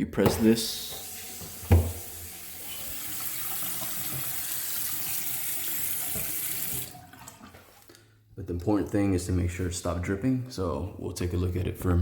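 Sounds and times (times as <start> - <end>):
faucet running into sink: 0.3 - 7.6.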